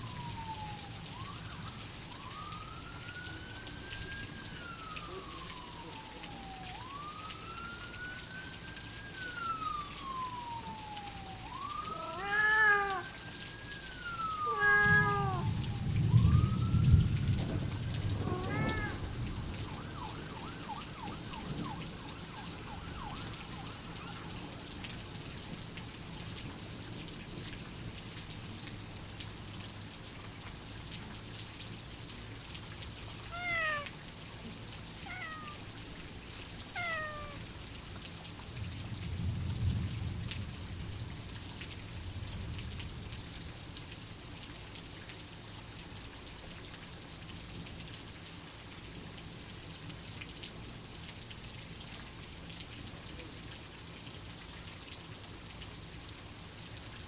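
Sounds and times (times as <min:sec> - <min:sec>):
distant siren wailing: 0:00.0 - 0:26.8, 0:33.0 - 0:37.8
heavy rain: 0:00.0 - 0:57.0
cat meowing: 0:11.9 - 0:13.2, 0:14.4 - 0:15.6, 0:18.2 - 0:19.1, 0:33.3 - 0:34.0, 0:35.0 - 0:35.7, 0:36.7 - 0:37.4
low thunder rumble: 0:14.8 - 0:20.3, 0:38.7 - 0:43.2.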